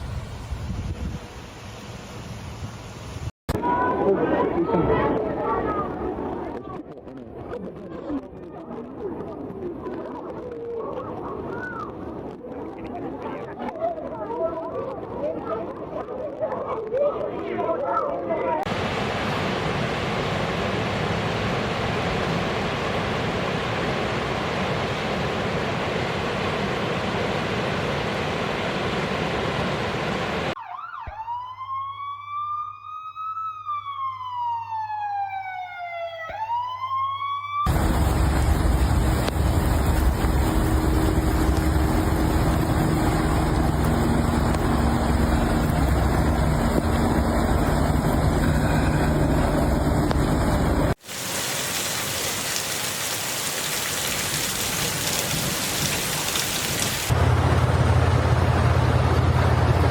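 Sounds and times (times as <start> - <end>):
emergency siren wailing: 30.5 - 51.0
steady rushing noise: 37.7 - 51.4.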